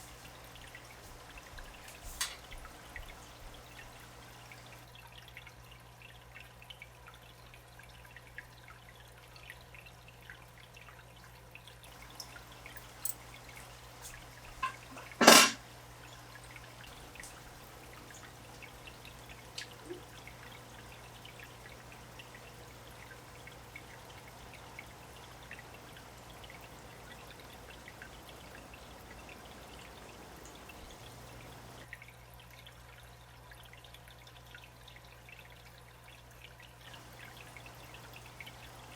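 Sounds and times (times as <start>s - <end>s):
water trickling and dripping: 0.0s - 38.9s.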